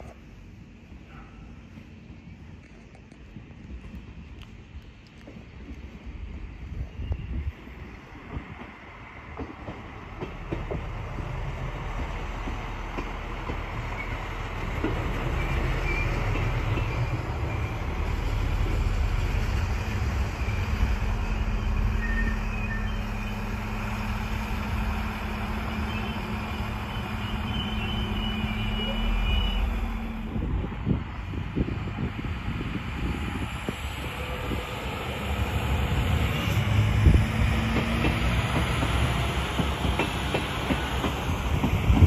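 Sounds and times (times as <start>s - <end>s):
diesel train engine rumbling: 0.0s - 42.0s
faint high brake squeals: 6.9s - 7.6s, 15.4s - 17.9s, 21.6s - 23.5s, 25.8s - 29.9s.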